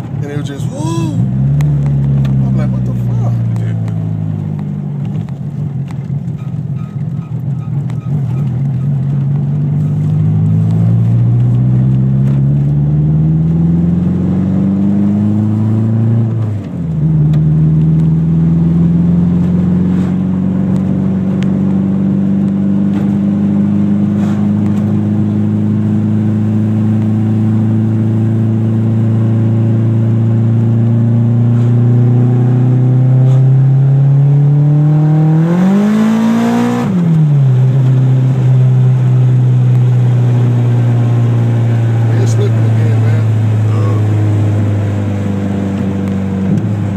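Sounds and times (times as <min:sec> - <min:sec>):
turbocharged car engine accelerating: 0:00.0 - 0:46.9.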